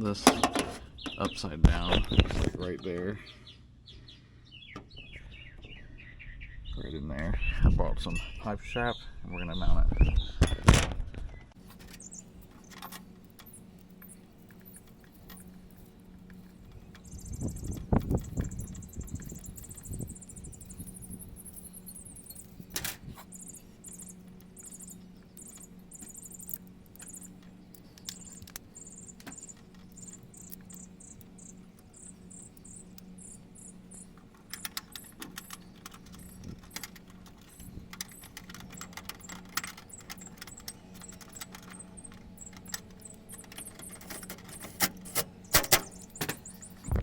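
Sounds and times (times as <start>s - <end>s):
steady low hum: 0.0s - 47.0s
pulsing high-pitched chirp: 11.9s - 47.0s.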